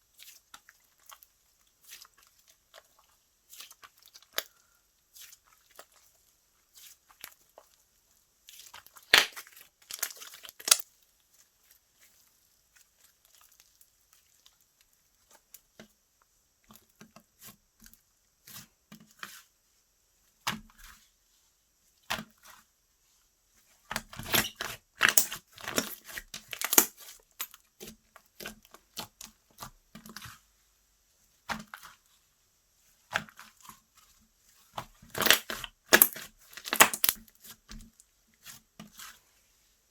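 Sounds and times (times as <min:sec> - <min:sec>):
slime crackling and popping: 0:08.8 - 0:10.9, 0:24.1 - 0:27.2, 0:35.0 - 0:37.2.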